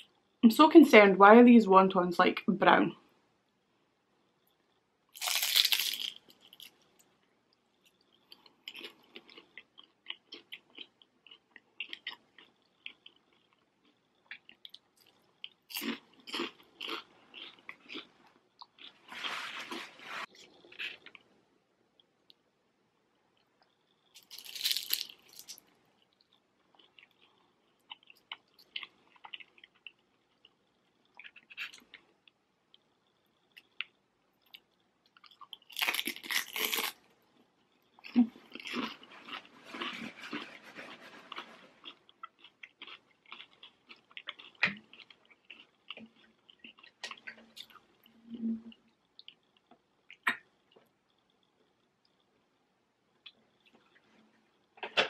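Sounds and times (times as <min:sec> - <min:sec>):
crunching and chewing crispy food: 0:05.1 - 0:21.3, 0:23.3 - 0:48.2.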